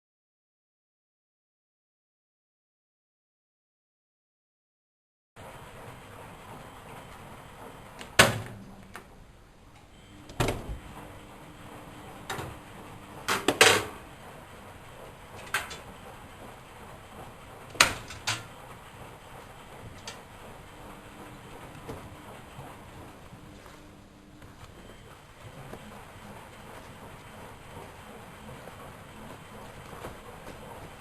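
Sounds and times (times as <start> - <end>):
washing machine knocks and clicks: 8.0 - 9.1, 10.3 - 11.0, 12.2 - 14.2, 14.8 - 18.6, 21.4 - 23.2.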